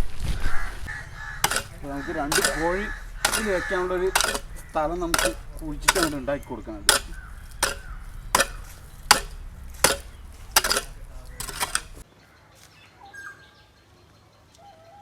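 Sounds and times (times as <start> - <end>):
digging tool striking earth: 0.9 - 12.0.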